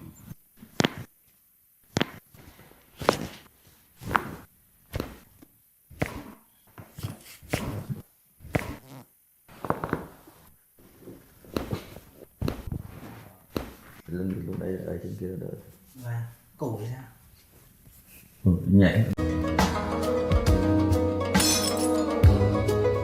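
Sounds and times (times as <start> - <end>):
hands thumping on a back: 1.9 - 3.4, 11.5 - 12.9, 13.5 - 14.0.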